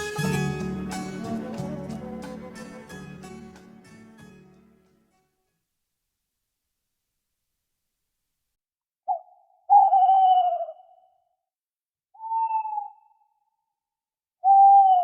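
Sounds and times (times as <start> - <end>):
hoot-like calls: 9.1 - 11.1, 12.2 - 13.1, 14.4 - 15.0.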